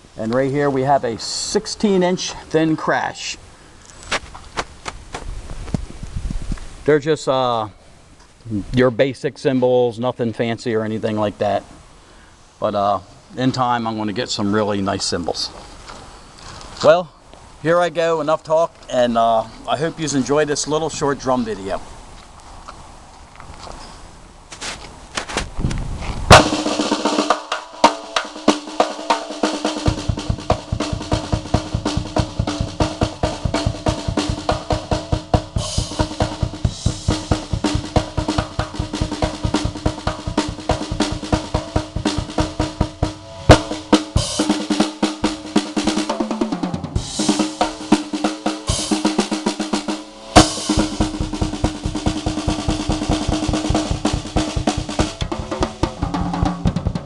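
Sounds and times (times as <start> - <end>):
bass drum: 26.3 - 57.0
cymbal crashes: 26.3 - 57.0
fast drum solo: 26.3 - 57.0.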